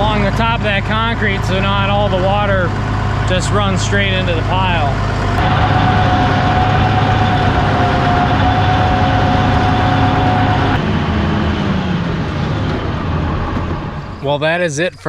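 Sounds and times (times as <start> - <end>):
steady whine: 0.0 - 15.0
tractor diesel engine running: 0.0 - 15.0.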